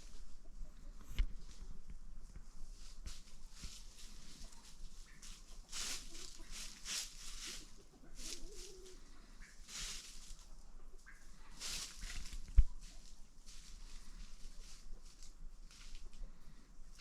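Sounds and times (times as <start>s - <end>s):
farm birds calling softly: 0.0s - 17.0s
scratching and rustling: 0.0s - 17.0s.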